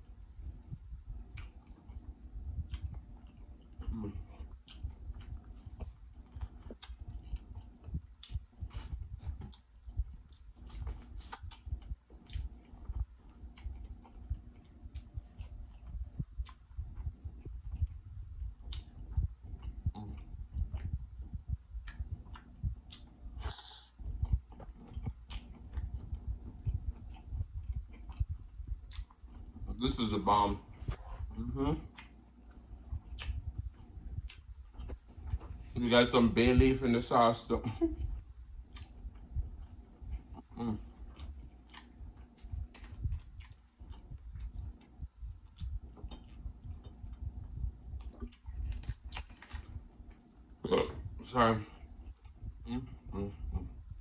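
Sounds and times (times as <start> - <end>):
person chewing: 1.1 - 30.0, 30.7 - 35.8, 38.0 - 51.2
wet chewing smacks: 32.9 - 35.7.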